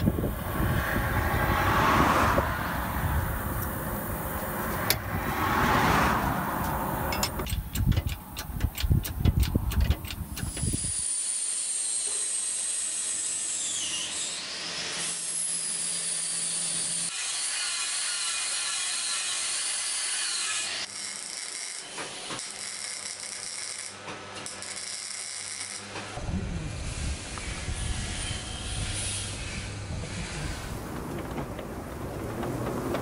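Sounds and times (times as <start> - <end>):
angle grinder grinding metal: 10.5 - 31.4.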